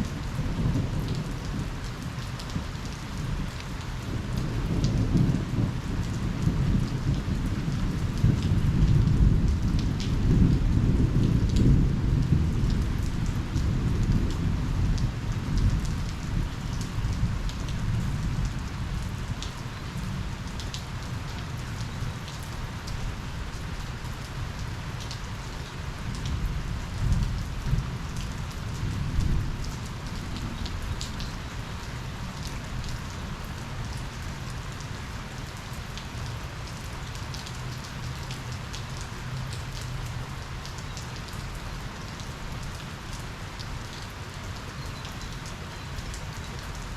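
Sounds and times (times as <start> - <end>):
steady rain falling: 0.0 - 46.9
low thunder rumble: 4.1 - 19.2, 26.2 - 31.8.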